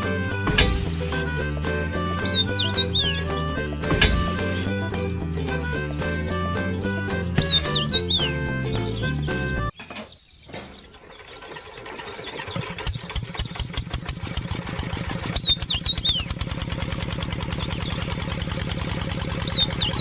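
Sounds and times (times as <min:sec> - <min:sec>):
small engine running: 0:00.0 - 0:07.2, 0:11.3 - 0:20.0
birds chirping: 0:00.0 - 0:20.0.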